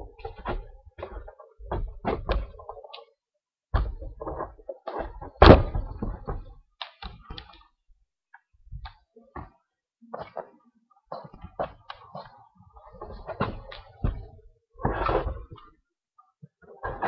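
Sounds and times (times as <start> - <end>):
knocks and thuds: 13.2 - 15.4.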